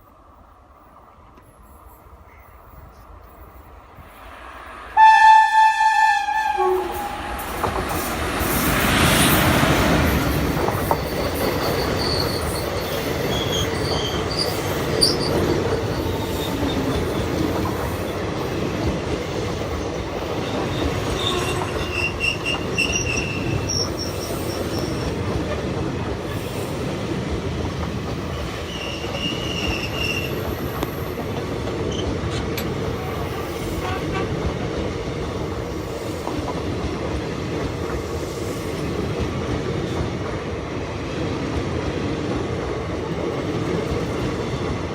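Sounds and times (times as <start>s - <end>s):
wheels rumbling on rails: 3.3s - 44.9s
train horn blast: 4.9s - 7.8s, 33.8s - 34.4s
high-pitched wheel squeals: 10.8s - 16.8s, 20.6s - 25.1s, 28.7s - 30.4s.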